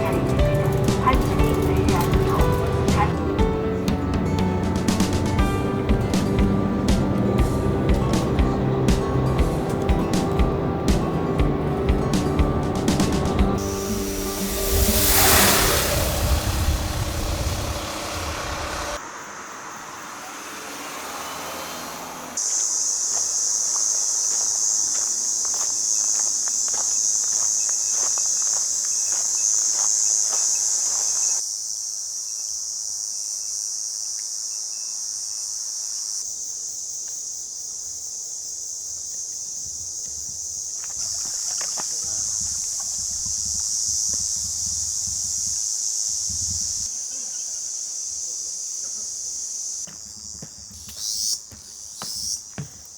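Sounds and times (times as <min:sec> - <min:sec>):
high-pitched insect chorus: 0:12.8 - 0:52.9.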